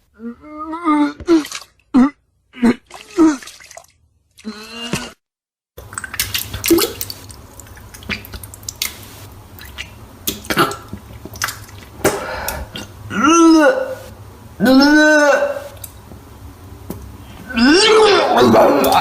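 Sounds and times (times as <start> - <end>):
person retching and gagging: 0.4 - 5.2, 10.3 - 14.0, 17.5 - 19.0
vomit splashing: 1.0 - 1.9, 2.6 - 5.2, 5.8 - 13.0.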